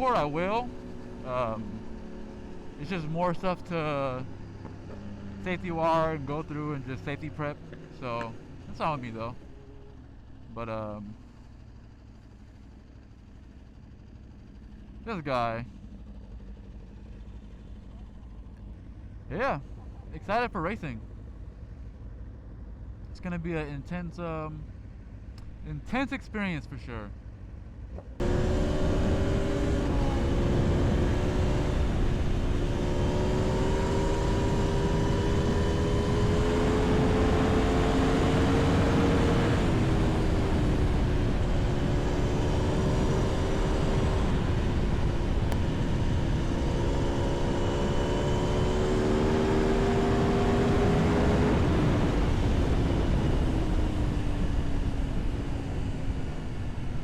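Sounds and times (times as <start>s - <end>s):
motorcycle engine accelerating: 0.0s - 20.8s, 27.2s - 57.0s.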